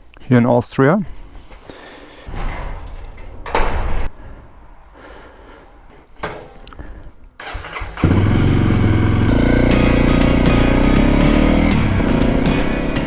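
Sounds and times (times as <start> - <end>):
motorcycle engine starting and idling: 7.4 - 13.0.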